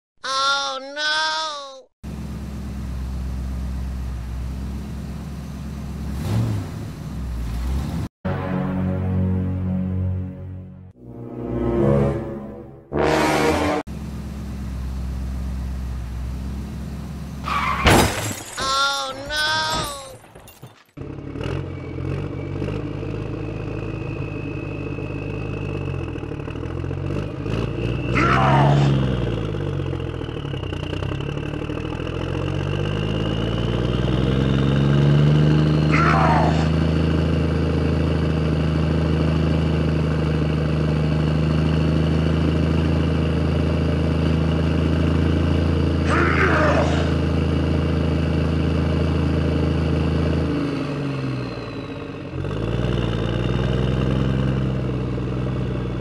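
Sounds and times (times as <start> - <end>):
tractor engine running: 2.0 - 8.0, 13.8 - 17.7, 18.8 - 46.1, 47.0 - 56.0.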